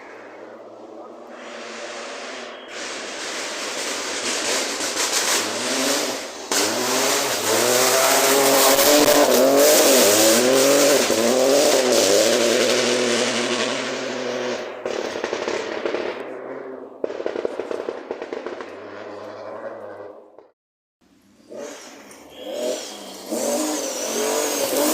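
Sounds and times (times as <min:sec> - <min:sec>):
rally car engine revving: 0:01.3 - 0:17.2, 0:21.4 - 0:24.9.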